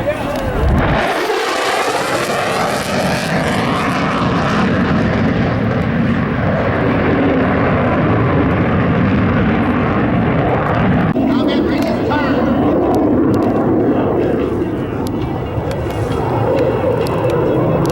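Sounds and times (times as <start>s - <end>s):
airplane flying past: 0.2s - 17.9s.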